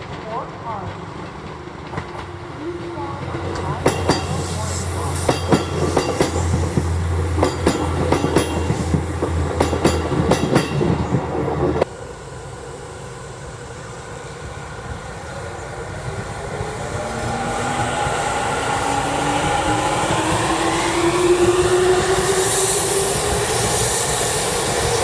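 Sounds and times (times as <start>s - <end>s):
train wheels clicking over rail joints: 0.0s - 11.9s
train running hum: 0.0s - 25.0s.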